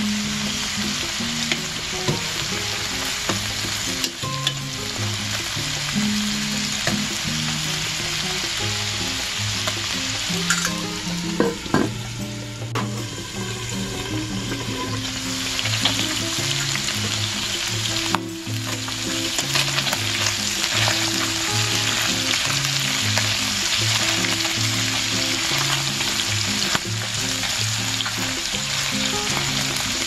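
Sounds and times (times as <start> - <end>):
chicken sizzling in oil: 0.0 - 30.0
metal clinks against pan: 9.8 - 10.8.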